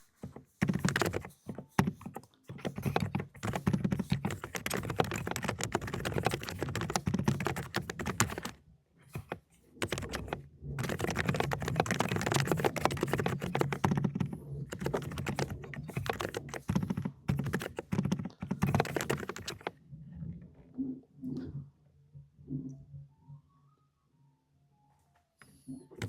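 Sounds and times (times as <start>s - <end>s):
fast mechanical keyboard typing: 0.0s - 19.7s.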